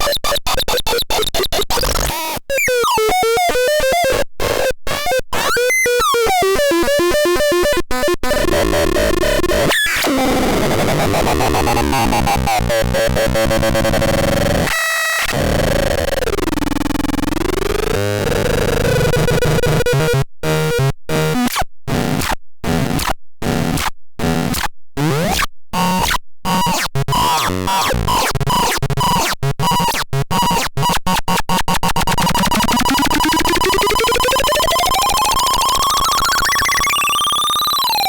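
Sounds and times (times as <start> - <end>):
choppy stuttering electronic sound: 26.0 - 38.0
synthesized tone sliding: 35.0 - 38.0
rising electronic sweeps: 35.4 - 38.0.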